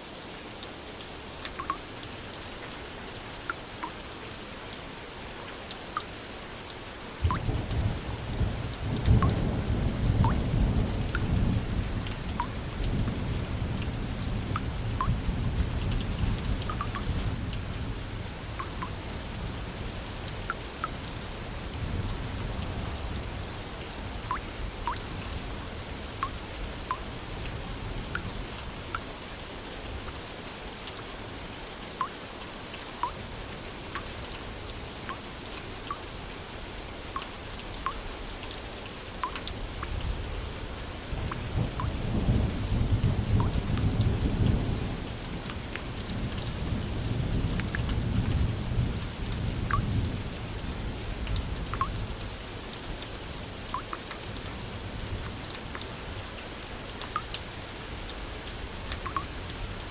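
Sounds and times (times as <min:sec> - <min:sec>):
steady rain: 0:00.0 - 0:59.9
raindrops plinking: 0:01.4 - 0:02.8, 0:03.4 - 0:04.2, 0:07.2 - 0:07.8, 0:08.8 - 0:09.6, 0:10.2 - 0:11.4, 0:12.0 - 0:13.1, 0:13.8 - 0:17.7, 0:18.4 - 0:19.1, 0:24.2 - 0:25.4, 0:26.1 - 0:27.1, 0:28.0 - 0:29.1, 0:31.9 - 0:33.2, 0:33.8 - 0:34.2, 0:35.0 - 0:36.2, 0:37.1 - 0:40.1, 0:41.2 - 0:42.4, 0:43.2 - 0:44.6, 0:49.7 - 0:50.0, 0:51.2 - 0:52.1, 0:53.6 - 0:54.4, 0:56.9 - 0:57.4, 0:58.8 - 0:59.9.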